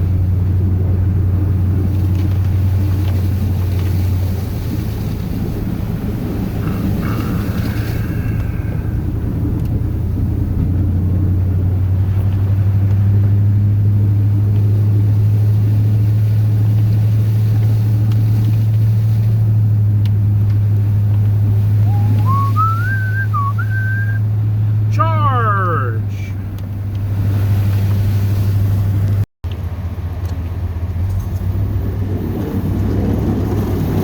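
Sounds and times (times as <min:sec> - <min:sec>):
truck engine drone: 0:00.0 - 0:34.0
short rising tones: 0:21.7 - 0:24.2.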